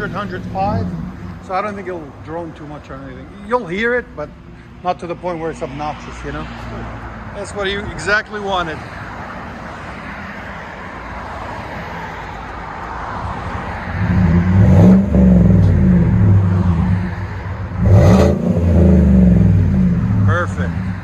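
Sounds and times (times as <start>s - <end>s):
truck engine idling and revving: 0.0s - 21.0s.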